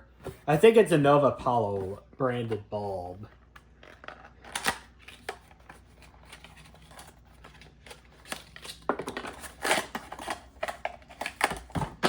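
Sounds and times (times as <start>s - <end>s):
packaging rustling and crinkling: 3.6s - 12.0s.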